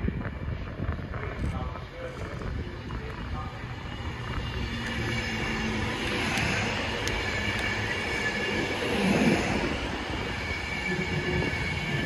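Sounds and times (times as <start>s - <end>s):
train wheels running on rails: 0.0s - 12.0s.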